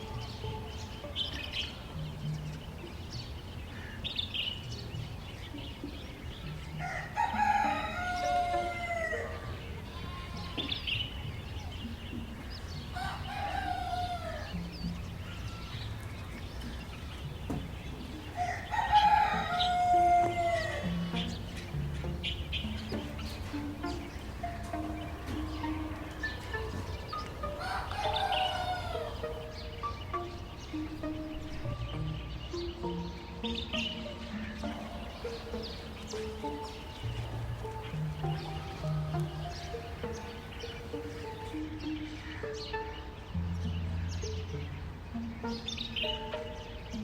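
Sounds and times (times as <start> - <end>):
small birds chirping: 0.0 - 47.0
rooster crowing: 6.7 - 10.8, 12.9 - 14.7, 18.2 - 21.4, 24.4 - 29.6.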